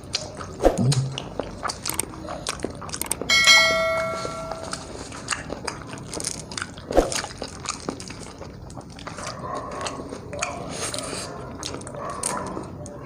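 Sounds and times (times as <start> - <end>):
biting and chewing: 0.0 - 3.3, 4.7 - 13.0
mouth clicks and smacks: 0.0 - 3.3.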